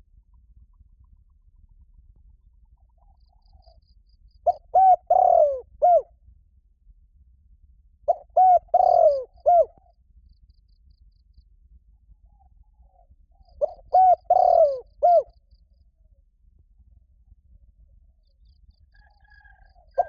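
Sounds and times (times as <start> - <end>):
dove cooing: 4.5 - 6.0, 8.1 - 9.8, 13.6 - 15.3, 19.2 - 20.0.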